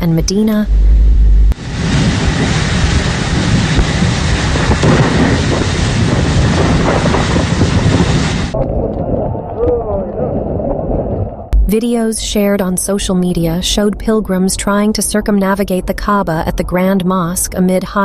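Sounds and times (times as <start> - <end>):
gusts hitting microphone: 0.0 - 13.2
wind and rain rushing: 0.8 - 11.7.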